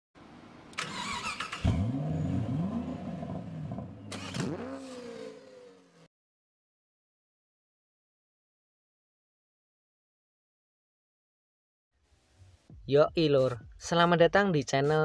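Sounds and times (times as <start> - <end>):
car engine revving: 0.7 - 6.1.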